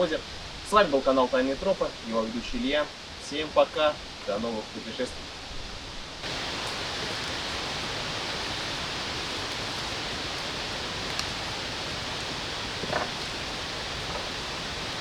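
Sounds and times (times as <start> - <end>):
steady rushing hiss: 6.2 - 15.0.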